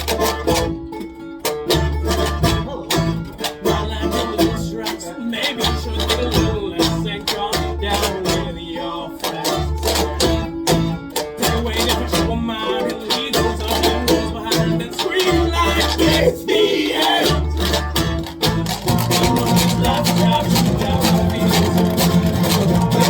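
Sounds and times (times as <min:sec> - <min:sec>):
plucked strings: 0:00.0 - 0:23.0
low bass notes: 0:01.7 - 0:04.9, 0:05.6 - 0:12.7, 0:13.3 - 0:16.4, 0:17.2 - 0:23.0
steady beat: 0:17.2 - 0:23.0.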